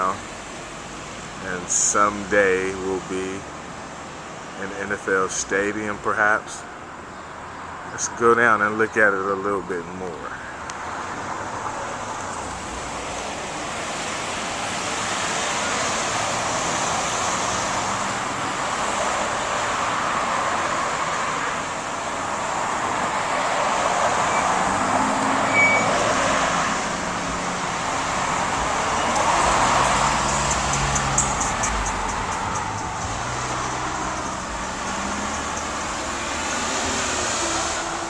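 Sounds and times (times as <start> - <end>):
road traffic rushing: 0.0 - 38.0
low engine hum: 26.8 - 38.0.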